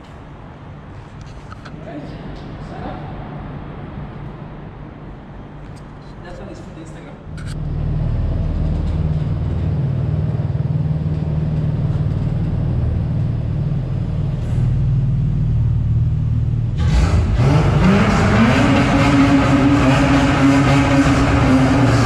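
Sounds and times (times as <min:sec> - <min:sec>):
car engine accelerating hard: 0:07.4 - 0:22.0.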